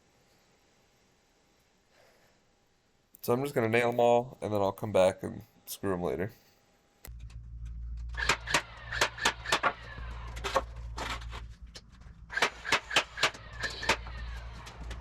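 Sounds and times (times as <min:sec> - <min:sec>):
steady low hum: 0:00.0 - 0:15.0
hammer driving nails into wood: 0:12.3 - 0:14.0.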